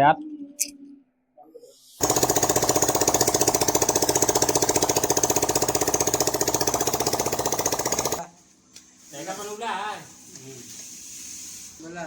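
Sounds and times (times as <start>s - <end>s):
motorcycle engine running: 2.0s - 8.2s.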